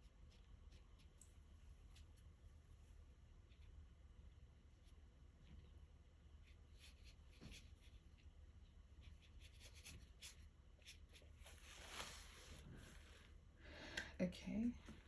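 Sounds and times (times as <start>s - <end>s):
paintbrush scratching on paper: 0.0s - 3.8s, 6.4s - 8.3s, 9.0s - 12.6s.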